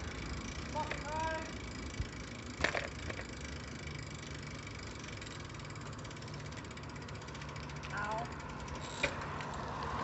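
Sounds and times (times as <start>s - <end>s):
bicycle riding rumble: 0.0s - 10.0s
rattle of sharp clicks: 0.3s - 10.0s.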